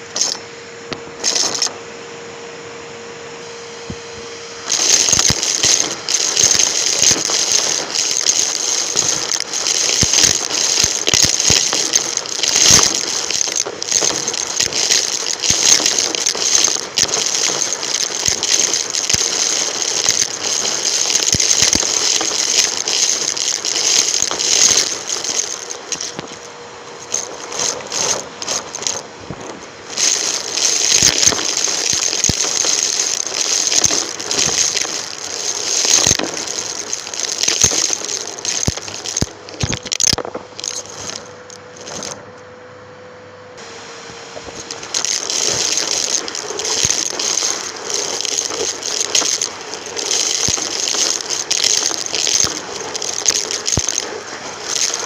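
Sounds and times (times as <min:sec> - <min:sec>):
debris rattling through vacuum: 0:00.0 - 0:00.5, 0:01.1 - 0:01.8, 0:04.5 - 0:42.2, 0:44.4 - 0:55.0
vacuum cleaner airflow: 0:00.0 - 0:33.6, 0:43.6 - 0:45.8.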